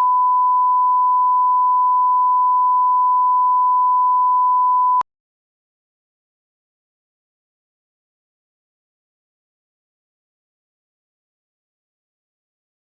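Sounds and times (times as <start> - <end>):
steady electronic beep tone: 0.0 - 5.0.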